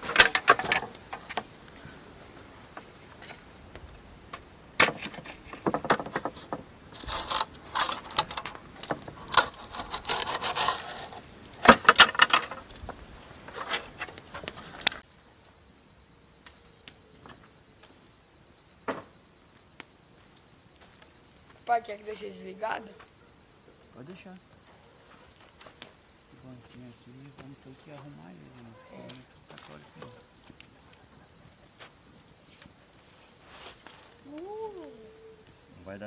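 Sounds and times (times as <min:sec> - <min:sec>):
small hard objects clinking: 0:04.9 - 0:15.0.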